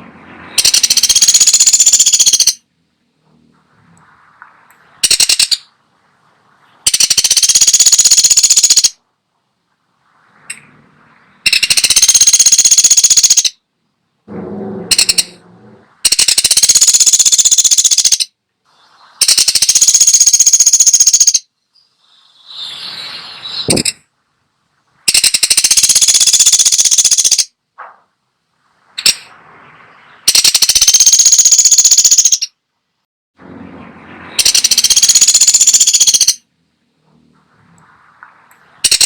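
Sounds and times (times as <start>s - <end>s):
woodpecker rattling trills: 0.6s - 2.6s, 4.9s - 5.8s, 6.8s - 9.0s, 11.4s - 13.6s, 14.6s - 15.4s, 16.0s - 18.3s, 19.2s - 22.7s, 25.1s - 27.5s, 30.0s - 32.6s, 34.4s - 36.4s.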